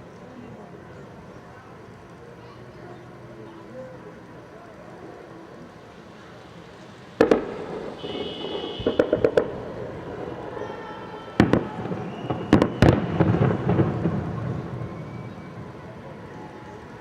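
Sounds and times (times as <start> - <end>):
fireworks bursting: 6.9 - 17.0.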